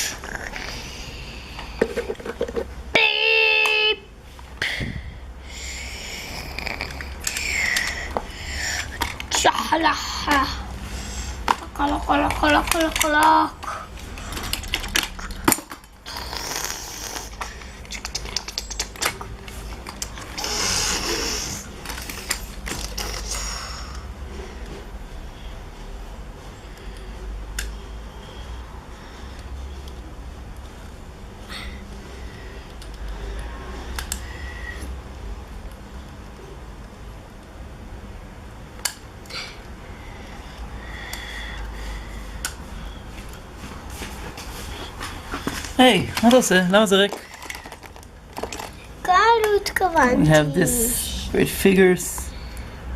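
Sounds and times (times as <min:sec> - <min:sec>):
low room hum: 0:00.0 - 0:52.9
toy vehicle parts clicking: 0:06.8 - 0:09.4, 0:11.5 - 0:13.5, 0:17.3 - 0:23.4, 0:47.1 - 0:48.8
metal toy vehicles clicking: 0:12.2 - 0:13.5.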